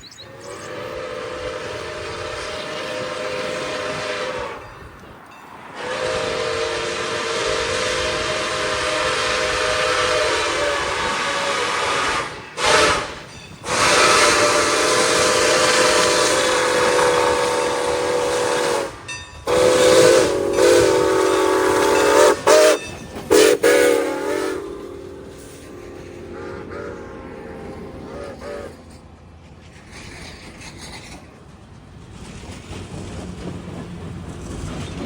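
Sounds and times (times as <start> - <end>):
locomotive air horn blasts: 0.3 - 5.0, 5.7 - 29.1.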